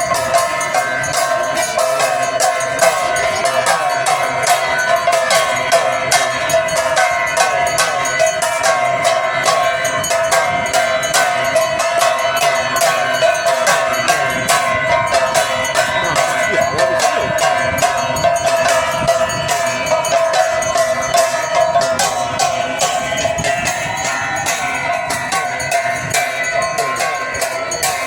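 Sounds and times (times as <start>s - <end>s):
metal bells ringing rapidly: 0.0s - 28.0s.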